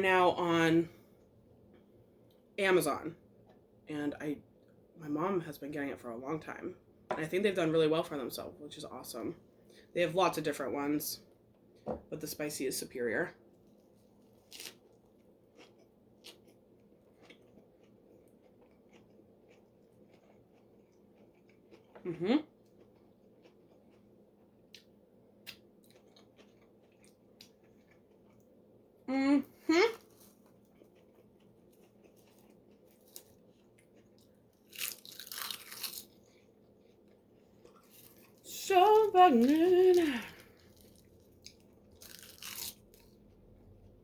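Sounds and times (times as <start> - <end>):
crisp crunching of food: 14.3 - 24.1, 25.5 - 28.4, 29.9 - 43.6
chewing: 14.5 - 28.5, 30.0 - 38.4.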